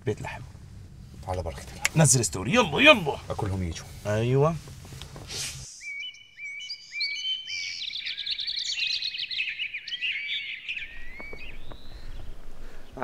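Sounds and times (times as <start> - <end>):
birds chirping and singing: 5.7 - 13.0.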